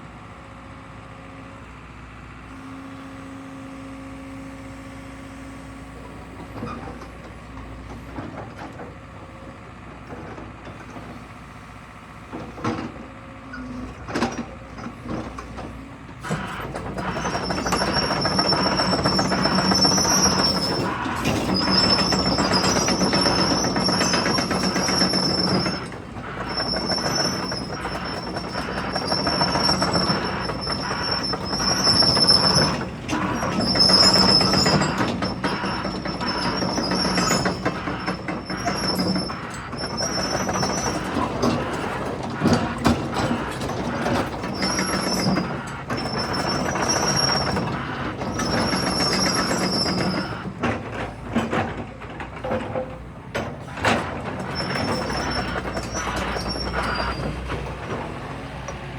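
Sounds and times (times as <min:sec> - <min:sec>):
excavator engine running: 0:04.2 - 0:58.9
high squeal of tracks: 0:06.2 - 0:07.1, 0:13.5 - 0:14.5, 0:15.4 - 0:52.8, 0:53.4 - 0:58.9
excavator knocks: 0:13.7 - 0:58.8
track chains clattering: 0:16.2 - 0:58.9.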